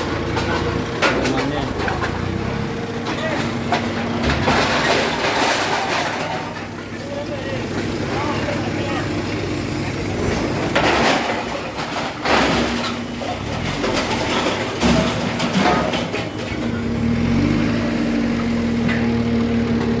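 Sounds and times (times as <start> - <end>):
machinery motor hum: 0.0 - 5.2
loud machinery clanks: 0.0 - 6.8, 10.2 - 17.8.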